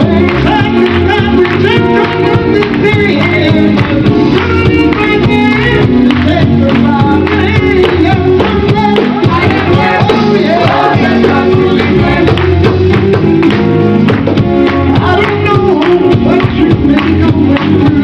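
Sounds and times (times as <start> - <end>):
live band with bass and drums: 0.0 - 18.0
group singing in harmony: 7.2 - 13.0.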